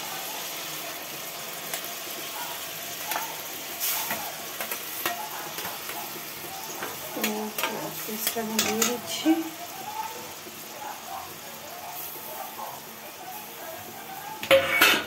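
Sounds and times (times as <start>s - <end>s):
onion paste sizzling in oil: 0.0s - 15.0s
spoon clicking against pan: 6.8s - 9.1s.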